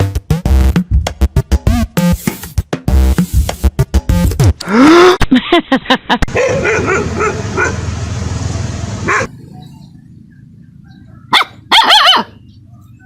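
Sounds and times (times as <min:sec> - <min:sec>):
dogs barking: 0:06.3 - 0:07.9, 0:09.0 - 0:09.4, 0:10.8 - 0:13.0
dog yelping and yipping: 0:09.1 - 0:09.3, 0:10.8 - 0:13.0.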